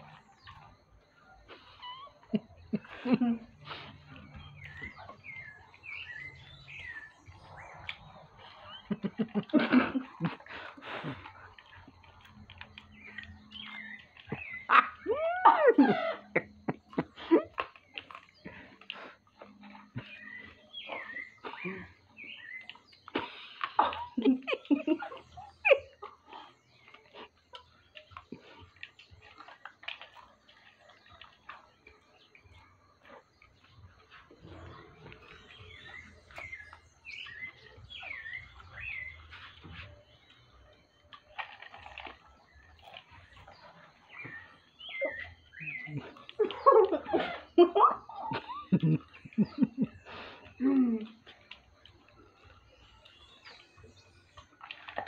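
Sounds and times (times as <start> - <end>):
snuffling breaths: 0.0 - 9.0, 9.6 - 14.6, 18.2 - 24.2, 49.4 - 51.4
people chewing popcorn: 0.0 - 55.0
popcorn crunching: 26.0 - 32.6, 33.6 - 47.2.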